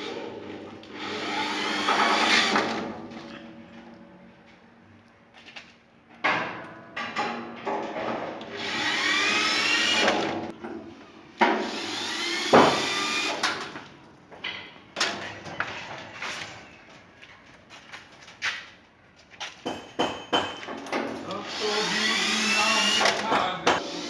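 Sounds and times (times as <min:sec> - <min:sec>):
power tool motor bursts: 0:01.0 - 0:02.8, 0:08.6 - 0:10.2, 0:11.6 - 0:13.4, 0:21.4 - 0:24.0.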